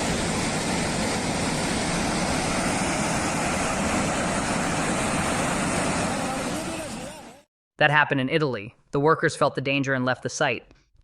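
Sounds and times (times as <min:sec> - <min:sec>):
floodwater rushing roar: 0:00.0 - 0:07.5.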